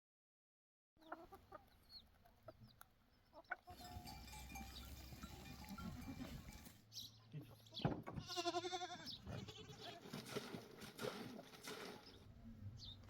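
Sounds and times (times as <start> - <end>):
fowl clucking: 1.0 - 4.0
outdoor background noise: 1.0 - 13.0.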